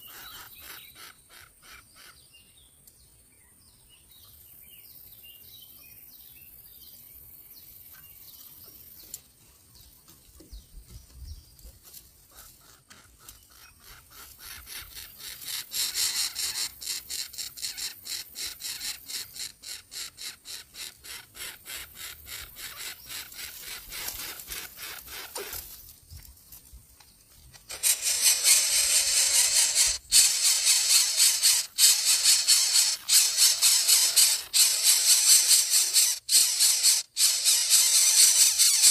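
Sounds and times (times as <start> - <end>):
nestling birds rasping begging calls: 0.0 - 2.6, 12.2 - 25.8, 27.6 - 38.9.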